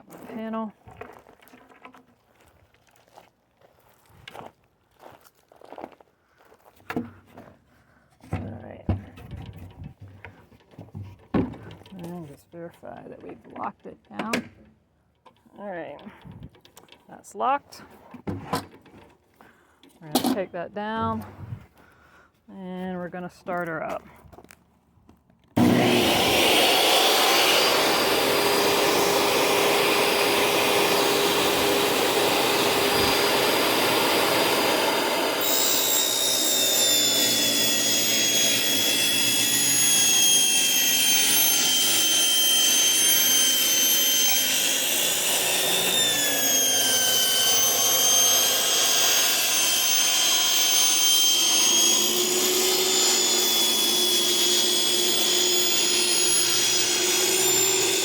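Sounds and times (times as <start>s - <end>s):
saw blade cutting panel: 25.6s - 58.0s
table saw motor whining: 25.6s - 58.0s.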